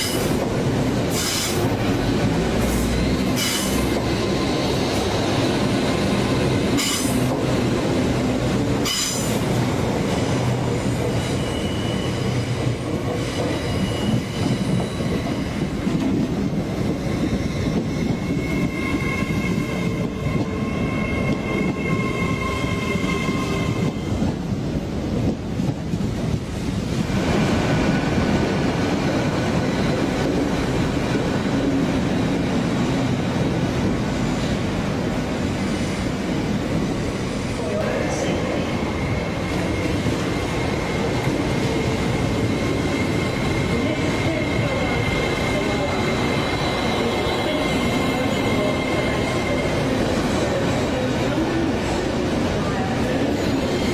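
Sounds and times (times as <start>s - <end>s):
train wheel squeal: 0.0s - 0.4s, 1.1s - 7.4s, 8.8s - 9.6s, 10.7s - 24.4s, 38.2s - 53.9s
train running on rails: 0.0s - 53.9s.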